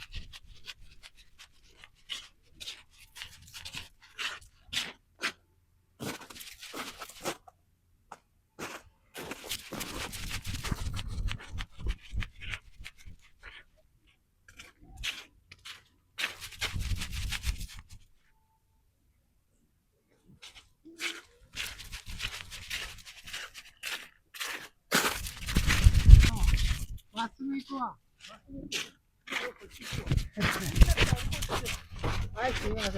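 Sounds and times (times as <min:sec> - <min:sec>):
footsteps crunching in snow: 0:08.6 - 0:13.7, 0:14.5 - 0:18.1, 0:20.4 - 0:27.3, 0:28.2 - 0:32.9.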